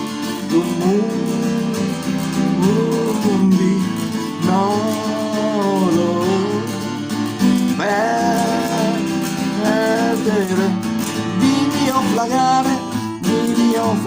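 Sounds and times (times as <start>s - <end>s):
strummed acoustic guitar: 0.0s - 14.0s.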